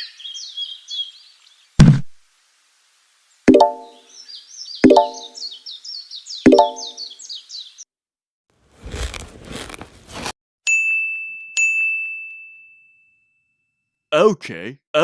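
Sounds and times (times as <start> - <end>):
birdsong chirping: 0.0 - 1.8, 3.5 - 7.8
bell-like dings: 10.7 - 13.9.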